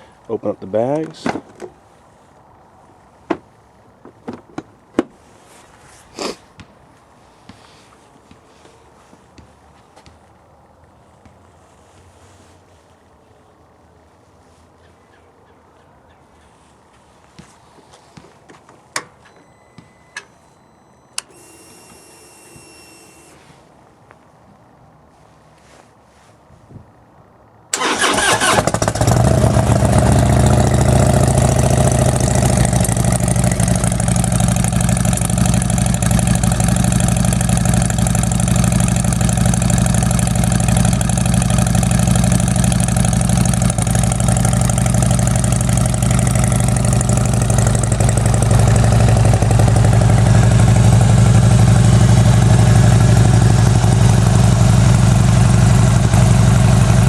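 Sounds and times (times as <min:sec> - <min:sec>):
motorcycle engine starting and idling: 0:27.7 - 0:57.0.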